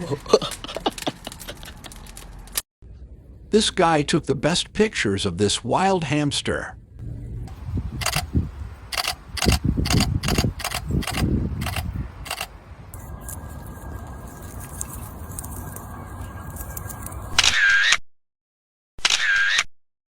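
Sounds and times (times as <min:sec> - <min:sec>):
camera shutter clicking: 0:08.0 - 0:08.3, 0:09.0 - 0:12.5, 0:17.4 - 0:18.0, 0:19.0 - 0:19.6.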